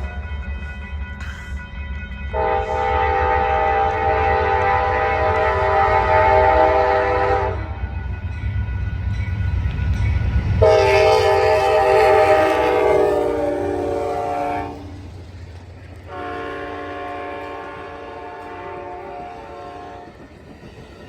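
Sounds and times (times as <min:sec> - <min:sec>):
low rumble of train: 0:00.0 - 0:21.0
train horn blasts: 0:02.3 - 0:07.8, 0:10.6 - 0:15.1, 0:16.1 - 0:20.3.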